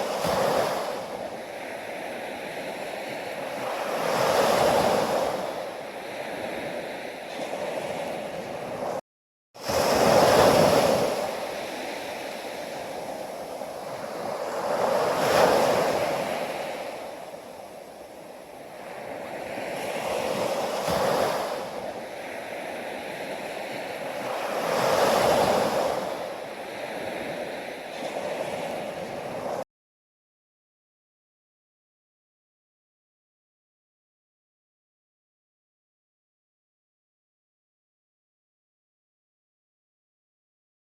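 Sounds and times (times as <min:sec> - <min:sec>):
sea waves breaking on shore: 0:00.0 - 0:09.0, 0:09.6 - 0:29.6.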